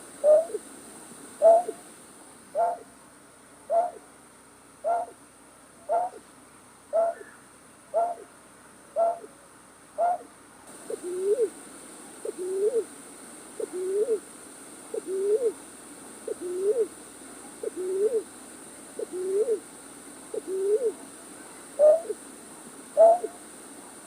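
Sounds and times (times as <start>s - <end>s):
steady high hiss: 0.0s - 24.0s
two-part hooting bird call: 0.2s - 0.6s, 1.4s - 1.8s, 2.6s - 2.8s, 3.7s - 4.0s, 4.8s - 5.2s, 5.9s - 6.2s, 7.0s - 7.4s, 8.0s - 8.3s, 9.0s - 9.3s, 10.0s - 10.3s, 10.9s - 11.5s, 13.6s - 14.2s, 15.0s - 15.6s, 16.3s - 17.0s, 17.6s - 18.3s, 19.0s - 19.6s, 20.3s - 21.0s, 21.8s - 22.2s, 23.0s - 23.4s.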